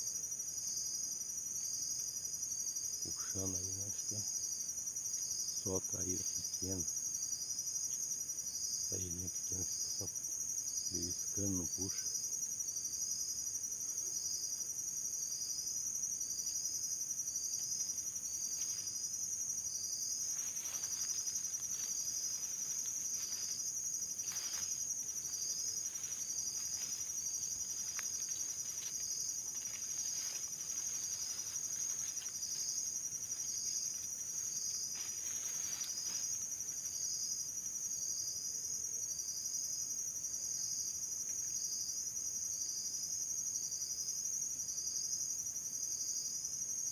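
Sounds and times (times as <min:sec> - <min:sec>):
insects chirring: 0:00.0 - 0:46.9
faint rustles: 0:17.5 - 0:37.1.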